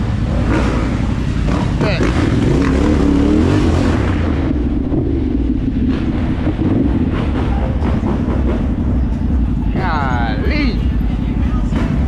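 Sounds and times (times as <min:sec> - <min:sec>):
dirt bike engine idling: 0:04.5 - 0:12.0.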